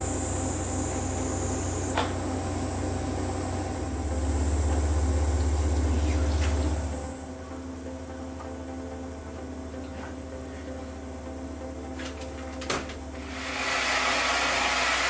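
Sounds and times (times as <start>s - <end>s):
hair dryer blowing: 13.2s - 15.0s.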